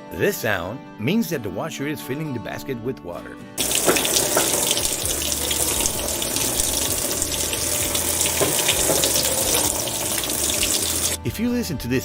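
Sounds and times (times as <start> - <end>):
water pouring into washing machine: 3.6 - 11.2.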